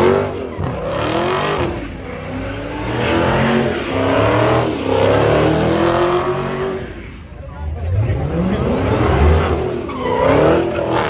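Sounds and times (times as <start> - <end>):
car engine revving hard: 0.0 - 6.9, 7.9 - 11.0
spinning tyres: 6.7 - 11.0.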